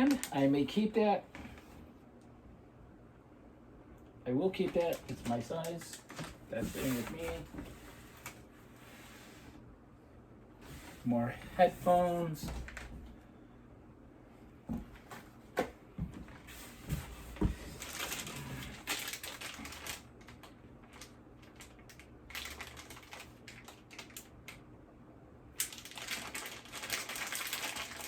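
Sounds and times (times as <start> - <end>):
plastic packaging rustling: 4.5 - 8.5, 11.6 - 13.1, 16.3 - 24.6, 25.6 - 28.0.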